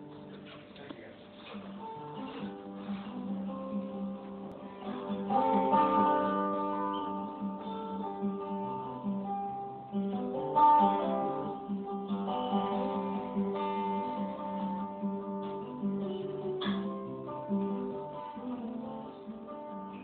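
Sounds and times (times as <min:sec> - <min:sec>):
acoustic guitar strummed and picked: 0:00.0 - 0:20.0.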